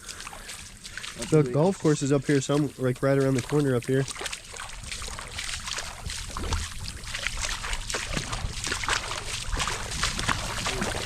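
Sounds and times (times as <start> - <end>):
footsteps splashing through water: 0.0 - 11.0
wind on microphone: 4.9 - 11.0.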